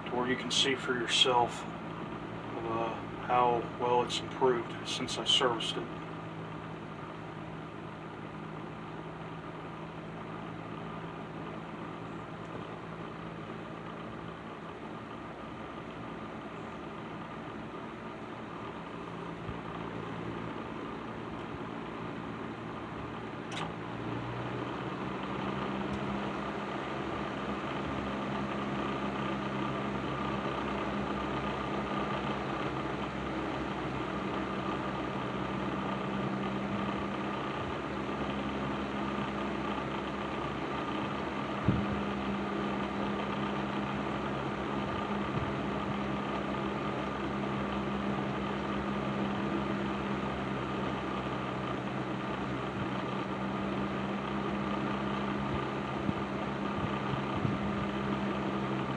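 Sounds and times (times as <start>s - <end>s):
box fan motor hum: 0.0s - 58.9s
short click: 23.5s - 23.7s.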